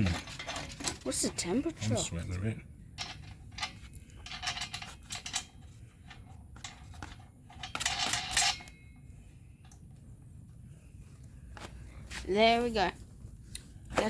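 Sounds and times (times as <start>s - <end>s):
small metal parts clinking: 0.0s - 1.3s, 3.0s - 9.8s.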